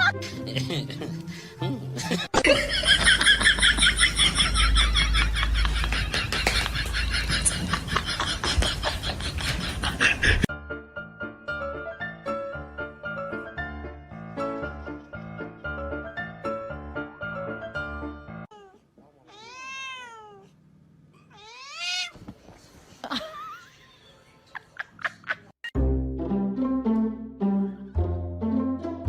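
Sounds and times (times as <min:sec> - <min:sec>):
light keyboard melody: 0:10.5 - 0:18.5, 0:25.8 - 0:29.0
cat meowing: 0:18.5 - 0:20.6, 0:21.2 - 0:22.2.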